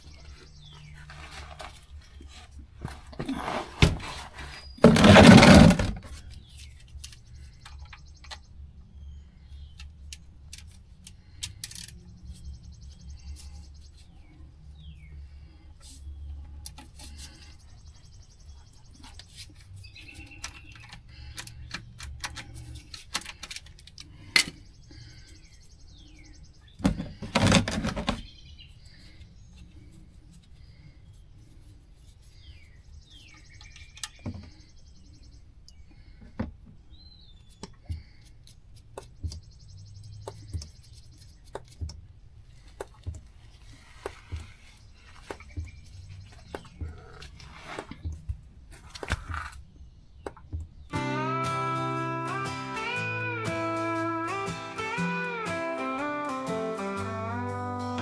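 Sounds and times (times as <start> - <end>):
birds chirping: 50.1 - 58.0.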